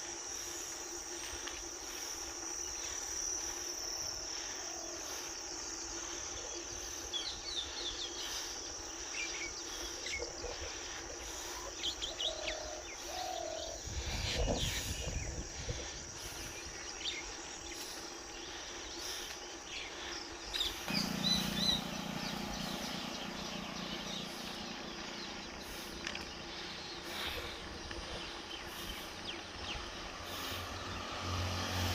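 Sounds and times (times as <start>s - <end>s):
insect drone: 0.0s - 31.9s
birds chirping: 4.7s - 31.9s
steady low hum: 19.7s - 31.9s
low rumble: 20.9s - 27.0s.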